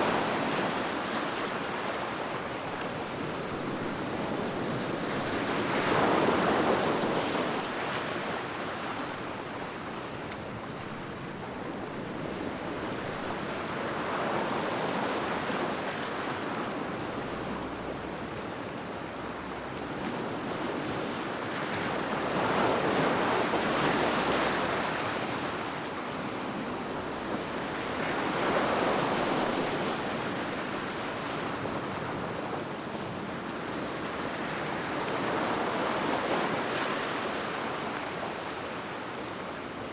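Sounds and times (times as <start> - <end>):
sea waves breaking ashore: 0.0 - 39.9.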